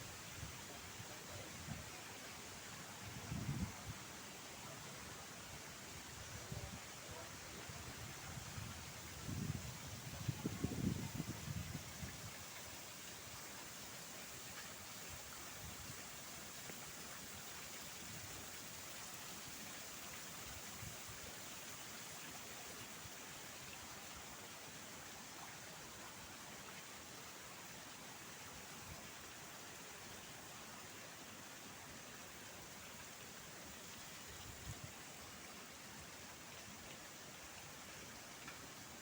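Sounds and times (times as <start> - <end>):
faint outdoor hiss: 0.0 - 39.0.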